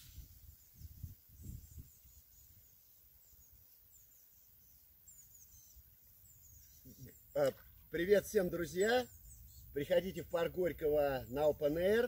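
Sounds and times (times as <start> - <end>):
faint small bird chirps: 0.0 - 8.0, 8.6 - 9.9.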